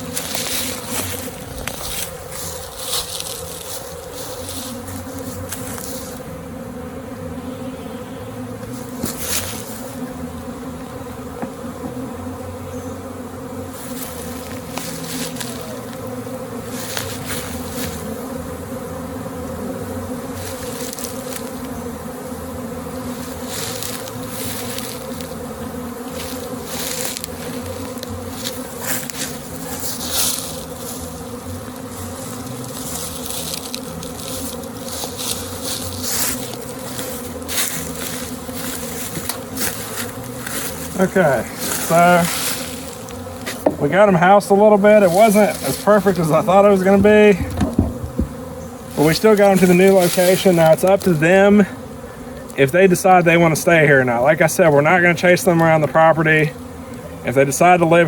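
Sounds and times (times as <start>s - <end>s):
scratchy rustles: 0.0s - 6.2s, 8.7s - 10.0s, 13.7s - 18.2s, 20.3s - 22.0s, 23.0s - 51.4s
bees buzzing: 0.0s - 58.0s.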